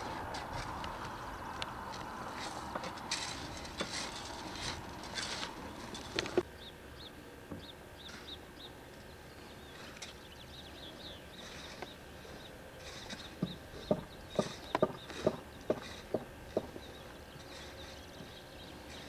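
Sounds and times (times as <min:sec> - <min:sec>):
outdoor rustling: 0:00.0 - 0:19.0
small bird chirping: 0:06.5 - 0:19.0.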